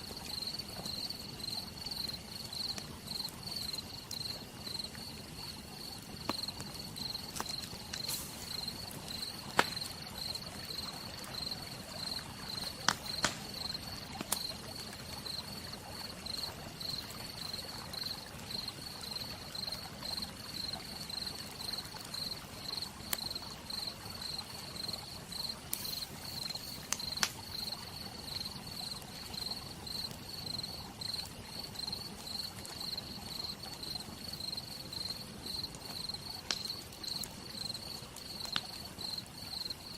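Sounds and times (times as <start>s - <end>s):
campfire pops and crackles: 0.0s - 39.9s
crickets chirping: 0.0s - 39.9s
soft even hiss: 6.2s - 14.6s, 25.5s - 27.7s.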